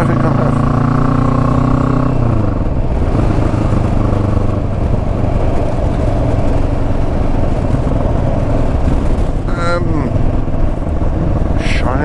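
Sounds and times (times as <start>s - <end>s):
motorcycle engine running: 0.0s - 12.0s
road and wind noise: 0.0s - 12.0s.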